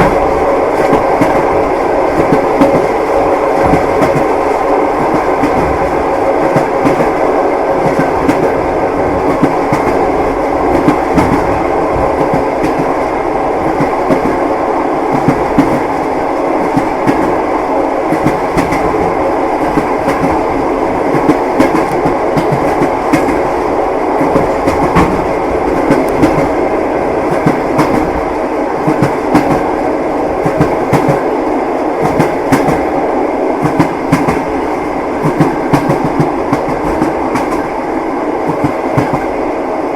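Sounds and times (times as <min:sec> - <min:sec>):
train wheels clicking on rail joints: 0:00.0 - 0:14.5, 0:15.1 - 0:31.3, 0:32.0 - 0:32.9, 0:33.6 - 0:37.8, 0:38.4 - 0:39.4
train rolling rumble: 0:00.0 - 0:39.9.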